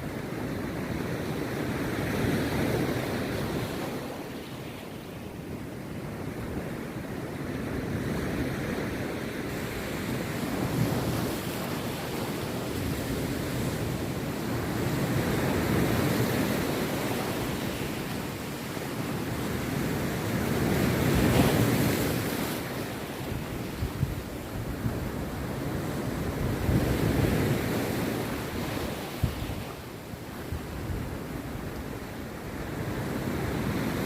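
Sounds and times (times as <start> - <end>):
waves breaking on beach: 0.0 - 34.0
wind buffeting microphone: 7.6 - 34.0.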